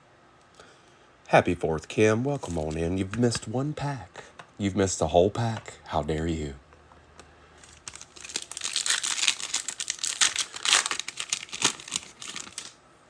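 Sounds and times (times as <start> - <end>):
wrapper tearing and crinkling: 2.4 - 2.8, 7.6 - 12.8.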